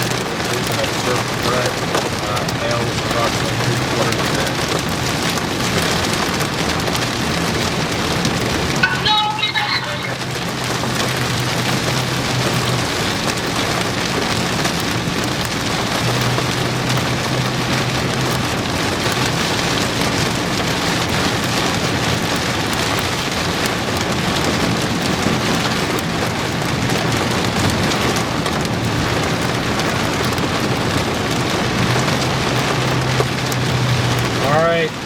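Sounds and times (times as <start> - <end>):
heavy rain on a vehicle roof: 0.0 - 35.0.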